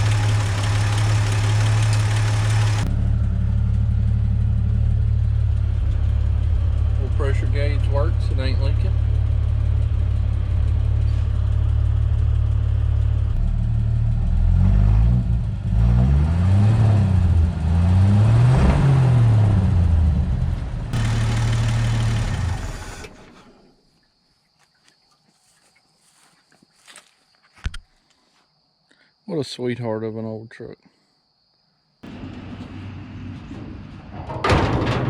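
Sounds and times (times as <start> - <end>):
truck engine idling and revving: 0.0 - 23.6, 32.0 - 34.8.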